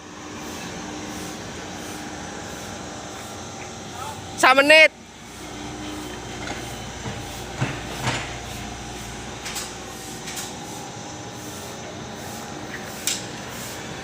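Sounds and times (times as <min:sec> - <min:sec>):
excavator diesel engine running: 0:00.0 - 0:14.0
machine clanks and scrapes: 0:05.8 - 0:14.0.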